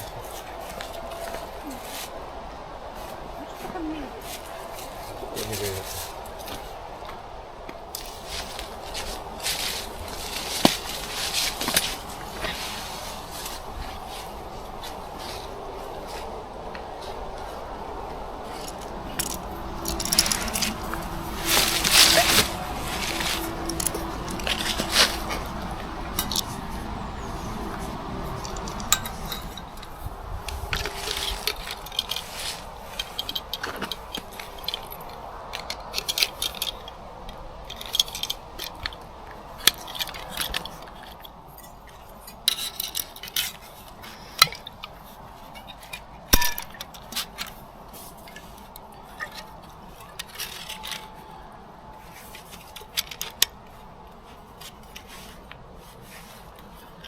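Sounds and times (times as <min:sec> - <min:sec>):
background hiss: 0:00.0 - 0:57.0
clinks and knocks of metal objects: 0:18.5 - 0:29.8, 0:45.6 - 0:47.6.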